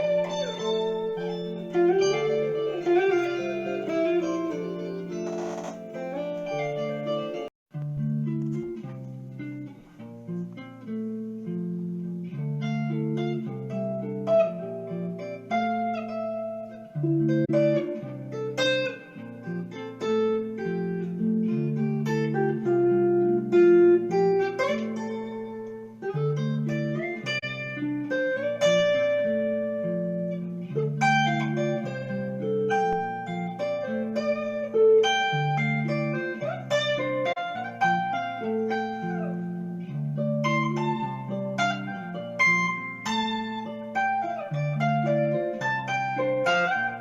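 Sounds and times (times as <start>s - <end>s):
instrumental guitar music: 0.0s - 47.0s.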